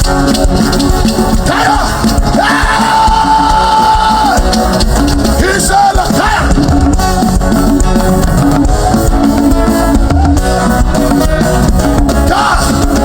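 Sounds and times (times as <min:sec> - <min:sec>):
drum kit beat: 0:00.0 - 0:13.0
electric guitar: 0:00.0 - 0:13.0
people singing: 0:01.0 - 0:07.1, 0:12.1 - 0:13.0.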